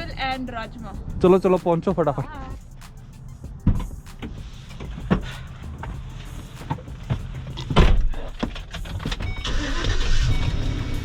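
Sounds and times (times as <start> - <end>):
low steady rumble: 0.0 - 11.0
vehicle doors shutting: 3.6 - 11.0.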